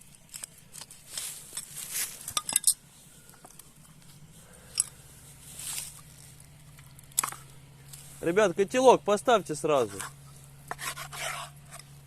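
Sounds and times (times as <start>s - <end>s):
rustling: 0.0s - 8.4s
hard objects clinking and knocking: 1.5s - 2.8s.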